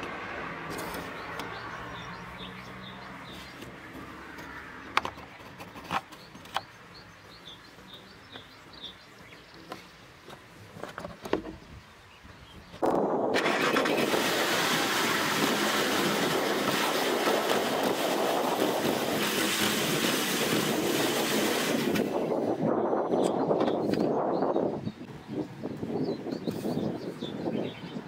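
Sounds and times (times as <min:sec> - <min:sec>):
car engine starting and running: 0:12.8 - 0:16.8.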